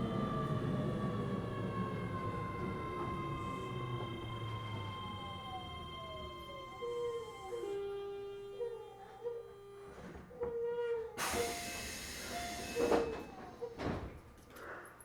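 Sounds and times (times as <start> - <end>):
electric train drive whine: 0.0 - 7.4
brake air hiss: 11.2 - 13.2.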